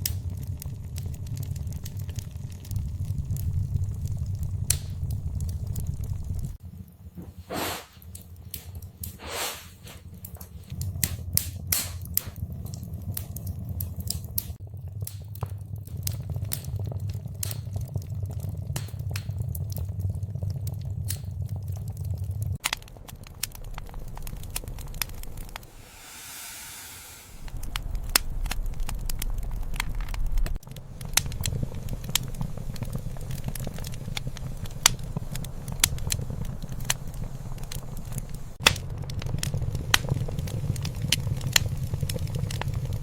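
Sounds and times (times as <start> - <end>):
low rumble: 0.0 - 9.2, 9.9 - 43.0
wood fire crackling: 0.0 - 43.0
brief hiss: 25.7 - 27.5.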